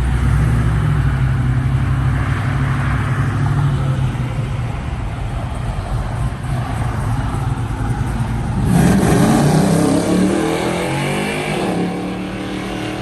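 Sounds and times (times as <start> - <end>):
car accelerating and passing: 6.4 - 13.0.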